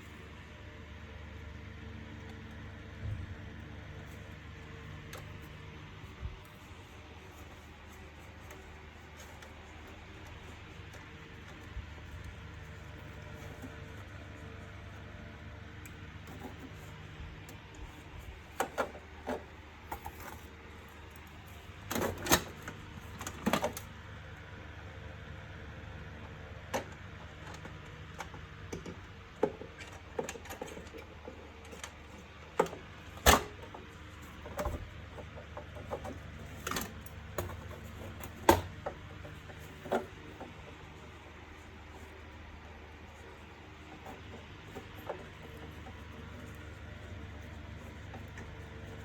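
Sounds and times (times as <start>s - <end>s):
plastic parts clicking and knocking: 16.3s - 20.6s, 21.2s - 23.9s, 26.7s - 42.1s.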